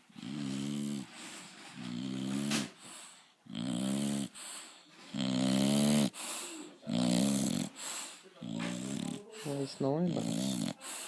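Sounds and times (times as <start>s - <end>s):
dog snoring with buzzing: 0.1s - 1.2s, 1.8s - 2.8s, 3.4s - 4.4s, 5.1s - 6.2s, 6.8s - 7.8s, 8.4s - 10.9s.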